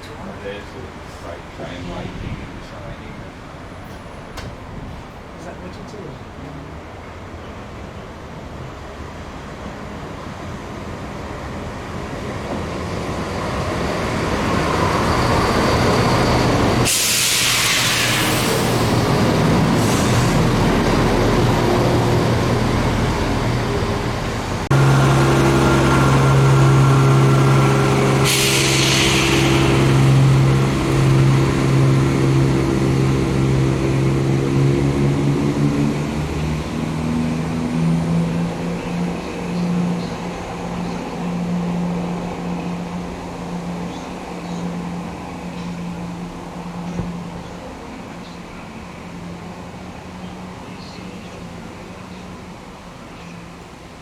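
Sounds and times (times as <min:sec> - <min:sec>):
diesel train engine: 0:00.0 - 0:54.0
air hiss: 0:16.8 - 0:19.1, 0:27.9 - 0:30.6.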